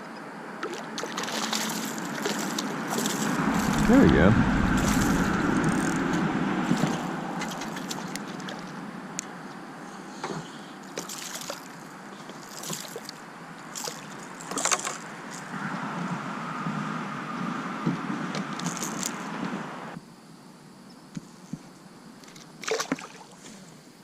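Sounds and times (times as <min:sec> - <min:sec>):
water sloshing against kayak: 0:00.6 - 0:06.1, 0:10.3 - 0:15.2.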